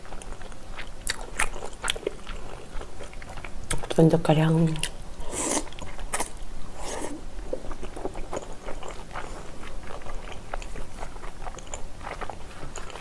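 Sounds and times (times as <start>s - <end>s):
wet chewing clicks and smacks: 7.7s - 13.0s.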